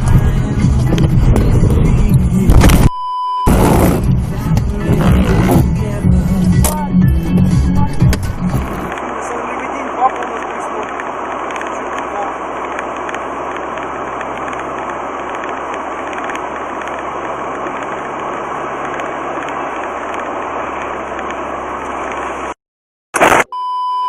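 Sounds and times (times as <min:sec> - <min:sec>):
car engine and road noise: 0:00.0 - 0:22.6
high beep: 0:02.8 - 0:03.6, 0:23.5 - 0:24.0.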